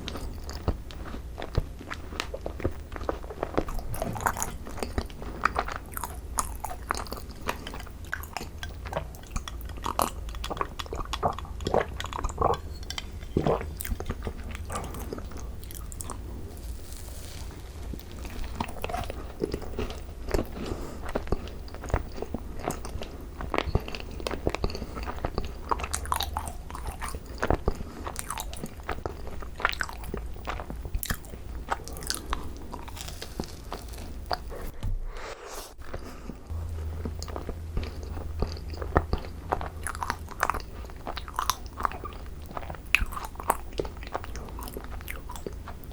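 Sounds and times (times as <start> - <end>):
chewing crisp crunches: 0.0 - 34.7, 35.8 - 45.9
low steady hum: 0.0 - 45.9.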